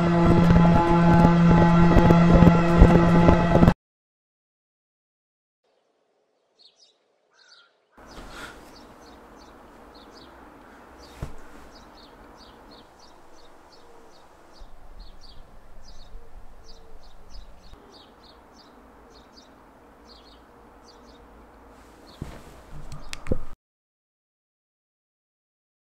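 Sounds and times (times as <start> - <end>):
small birds chirping: 6.4 - 23.3
low background rumble: 8.0 - 22.0.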